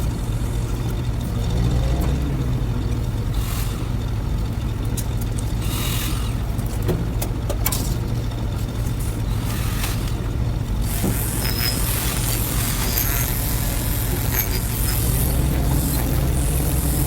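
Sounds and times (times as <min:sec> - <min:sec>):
machine engine droning: 0:10.6 - 0:17.0
hissing: 0:10.8 - 0:17.0.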